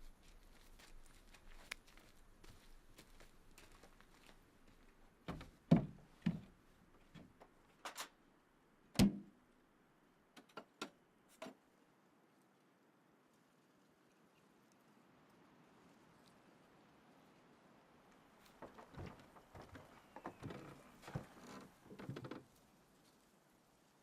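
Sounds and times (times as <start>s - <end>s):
knocks and clunks: 18.5s - 22.4s.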